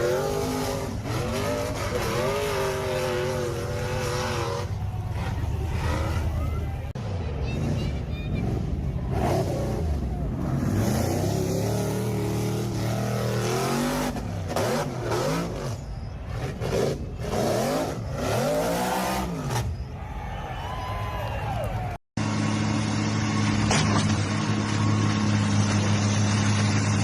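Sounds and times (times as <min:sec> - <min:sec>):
car engine revving: 0:00.0 - 0:07.0, 0:08.4 - 0:19.8.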